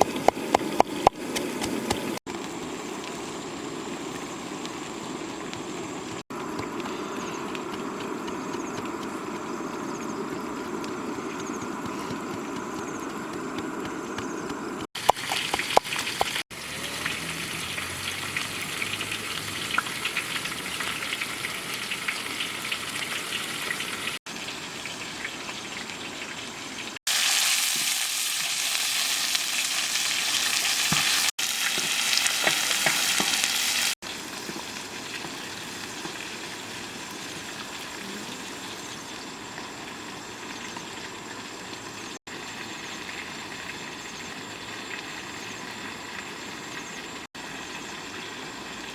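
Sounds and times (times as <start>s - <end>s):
fish sizzling in frying: 14.5s - 48.9s.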